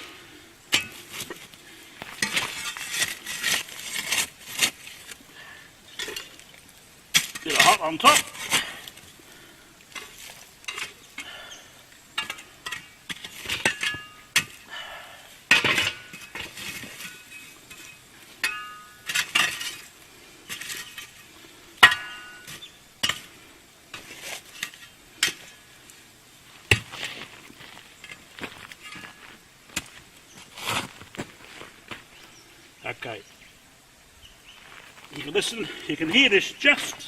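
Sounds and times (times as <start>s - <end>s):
coals clinking on metal lid: 5.9s - 6.5s, 9.8s - 11.3s, 12.1s - 14.6s, 15.5s - 19.9s, 21.8s - 23.3s.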